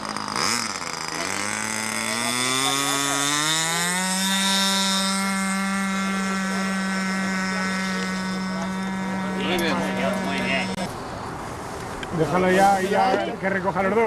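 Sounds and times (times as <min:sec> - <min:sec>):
model aircraft engine revving: 0:00.0 - 0:11.0.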